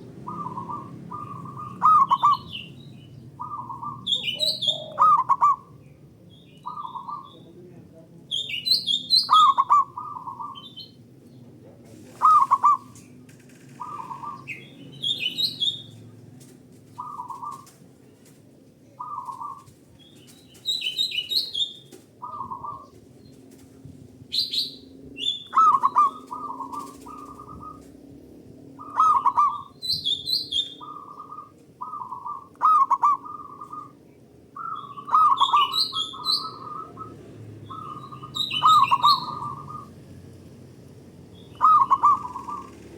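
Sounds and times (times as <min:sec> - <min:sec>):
doves cooing: 0:00.0 - 0:07.6, 0:08.5 - 0:42.9
high-pitched chirping: 0:34.6 - 0:39.9.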